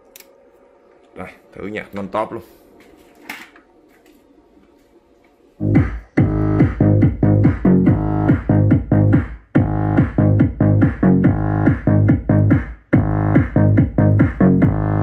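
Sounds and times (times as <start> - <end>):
faint hum: 0.0 - 6.4
electronic dance music with heavy bass: 5.6 - 15.0.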